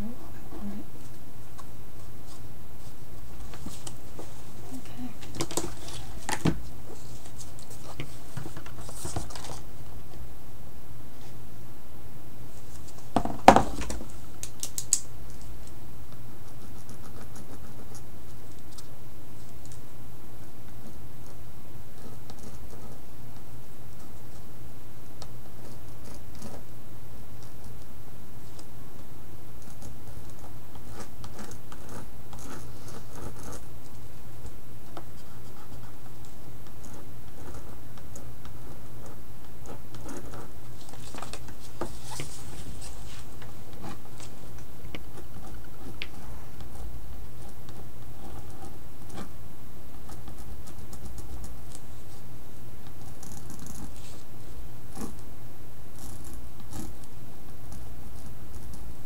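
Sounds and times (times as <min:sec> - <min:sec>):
steady low hum: 0:00.0 - 0:59.0
tools scratching on paper: 0:16.2 - 0:19.8, 0:20.4 - 0:24.6, 0:25.2 - 0:26.7, 0:29.5 - 0:55.3, 0:55.9 - 0:59.0.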